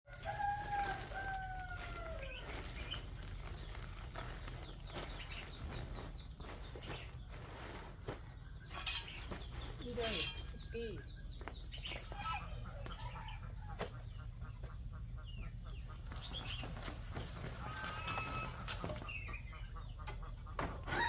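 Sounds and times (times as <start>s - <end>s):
high-pitched insect drone: 0.1s - 13.2s
rustle: 16.4s - 19.1s.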